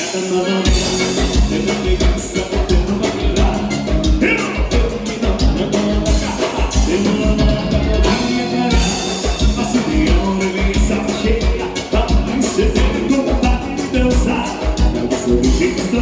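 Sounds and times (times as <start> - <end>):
live dance band music: 0.0 - 16.0
steady drum beat: 0.0 - 16.0.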